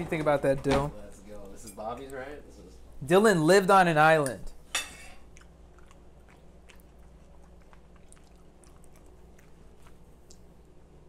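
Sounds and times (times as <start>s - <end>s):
low room hum: 0.0s - 11.0s
faint chewing: 1.1s - 2.3s, 5.0s - 11.0s.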